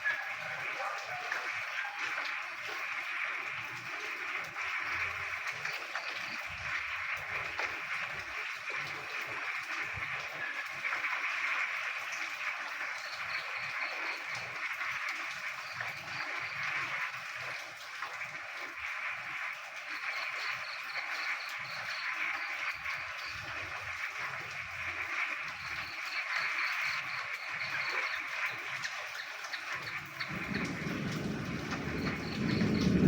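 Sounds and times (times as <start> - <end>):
chorus of frogs croaking: 0.0 - 33.0.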